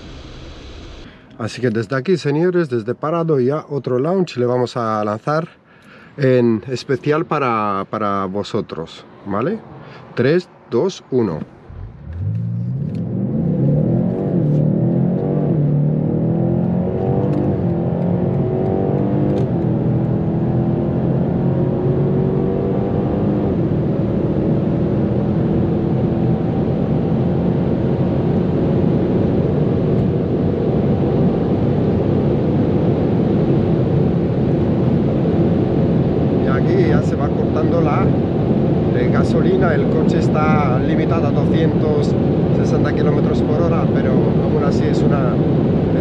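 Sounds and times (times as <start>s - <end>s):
car engine accelerating: 0.0s - 1.2s, 11.6s - 46.0s.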